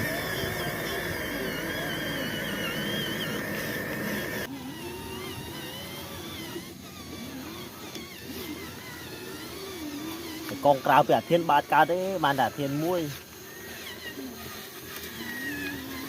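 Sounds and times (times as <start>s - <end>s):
steady tone: 0.0s - 4.5s
toy car electric motors whining: 0.0s - 16.0s.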